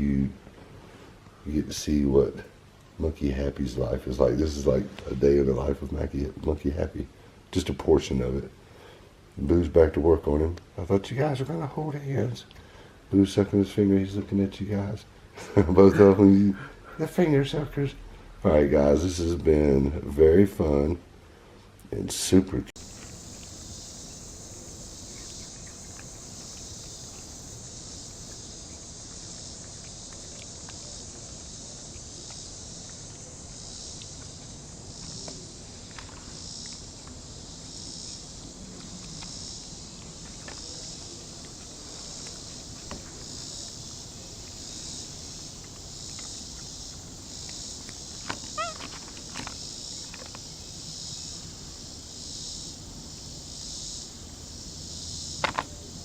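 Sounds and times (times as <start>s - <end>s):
insects chirping: 0.0s - 21.5s, 22.5s - 56.0s
short squeaky chirps: 48.2s - 49.4s.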